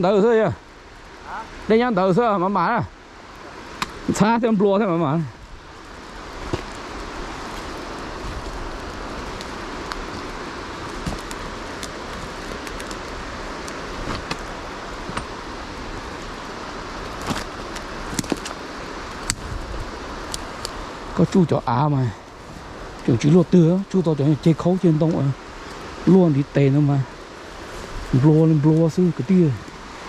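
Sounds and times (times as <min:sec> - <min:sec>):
stream flowing: 0:00.0 - 0:30.0.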